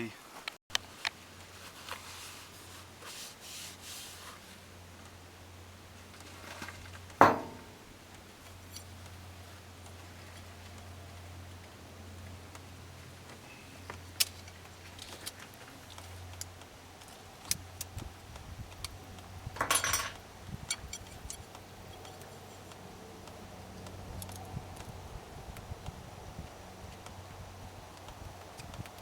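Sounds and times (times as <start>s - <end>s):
metal rattle: 6.4s - 7.9s, 19.6s - 21.4s.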